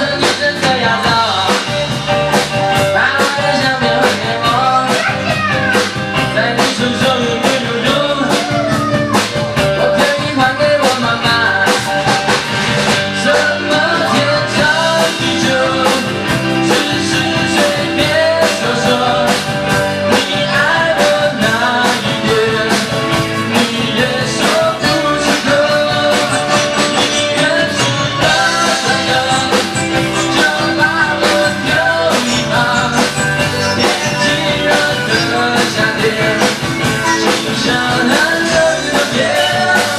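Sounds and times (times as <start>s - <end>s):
drum kit beat: 0.0s - 39.9s
electric guitar: 0.0s - 39.9s
wavering melody line: 24.8s - 39.7s.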